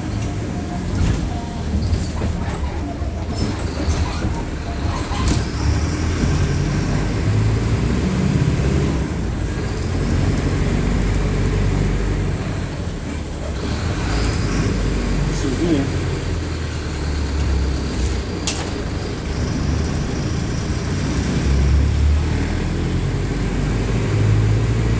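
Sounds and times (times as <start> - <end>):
bus diesel engine drone: 0.0 - 24.9.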